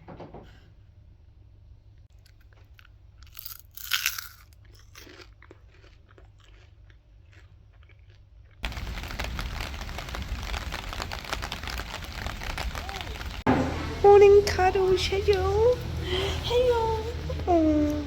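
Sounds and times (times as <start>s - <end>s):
crunching: 2.2s - 14.0s
loud hiss with small ticks: 8.6s - 13.5s.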